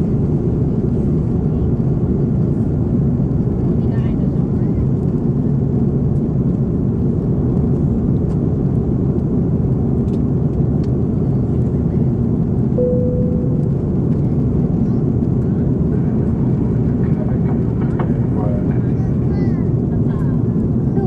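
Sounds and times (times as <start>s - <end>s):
airplane cabin drone: 0.0s - 21.0s
short steady tone: 12.8s - 14.3s.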